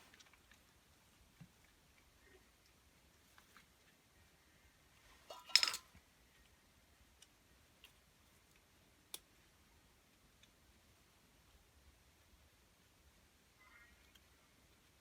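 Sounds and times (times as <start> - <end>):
small hard parts clattering: 5.2 - 6.0.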